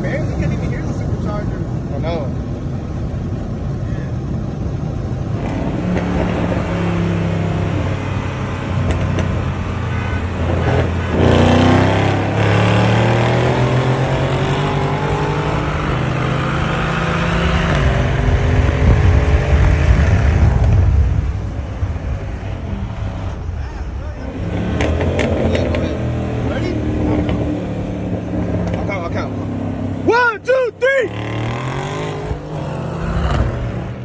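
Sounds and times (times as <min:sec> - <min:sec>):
car engine accelerating hard: 0:10.4 - 0:23.5, 0:24.2 - 0:30.2, 0:31.0 - 0:34.0.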